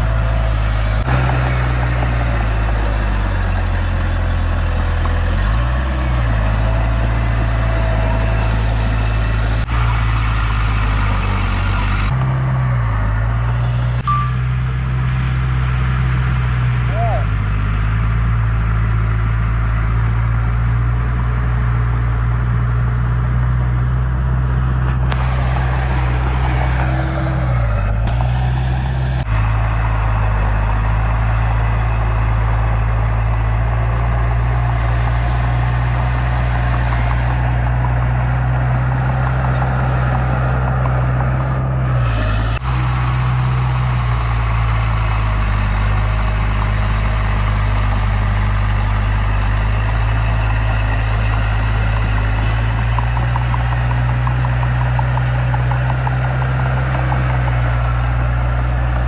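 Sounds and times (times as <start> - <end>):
heavy diesel engine running: 0.0 - 59.0
rushing noise: 25.0 - 59.0.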